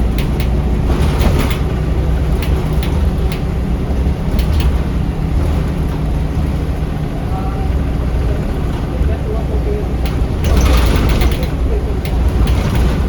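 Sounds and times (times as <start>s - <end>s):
bus engine low rumble: 0.0s - 13.0s
rattles and ticks: 0.0s - 13.0s.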